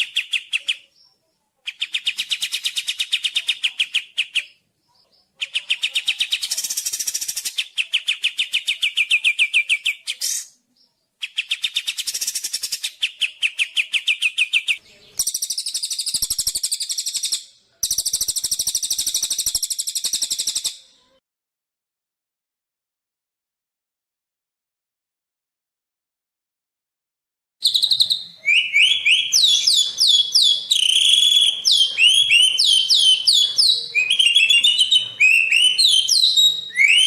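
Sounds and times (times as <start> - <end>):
songbird singing long trills: 27.6 - 37.0.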